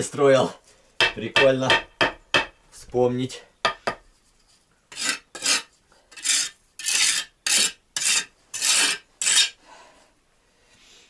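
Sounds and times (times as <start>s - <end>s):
trowel scraping mortar: 4.9s - 9.6s.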